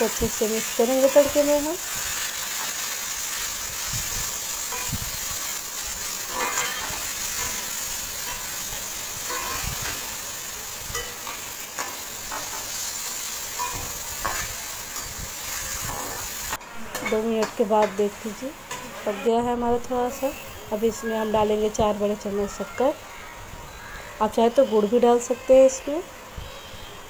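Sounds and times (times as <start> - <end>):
tomatoes sizzling in hot fat: 0.0 - 27.0
spatula scraping and knocking pan: 9.2 - 10.1.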